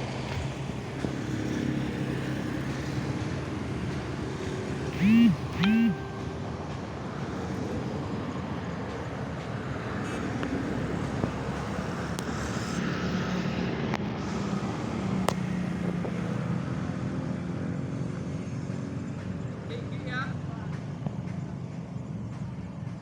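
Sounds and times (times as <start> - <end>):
small motor mechanical hum: 4.8 - 6.5
sharp clicks: 5.0 - 6.3.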